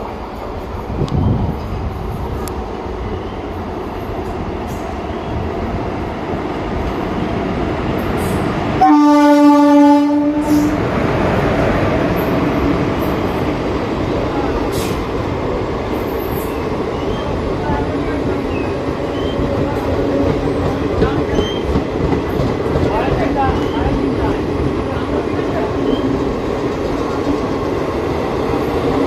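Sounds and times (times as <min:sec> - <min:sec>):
train rumbling: 0:00.0 - 0:29.0
train horn blast: 0:08.8 - 0:10.8.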